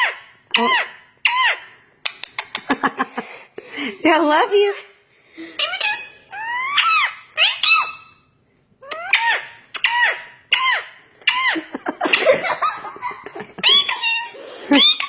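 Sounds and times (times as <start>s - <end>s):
parrot squeaky calls: 0.0s - 1.7s, 4.7s - 12.3s, 13.6s - 15.0s.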